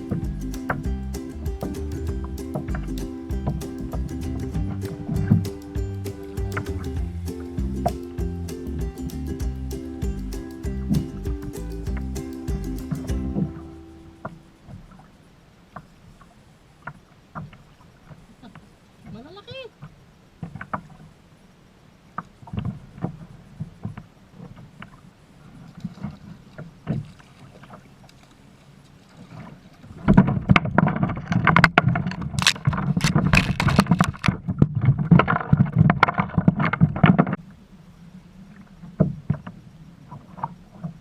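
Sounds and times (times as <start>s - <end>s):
water splashing: 0.0s - 15.0s.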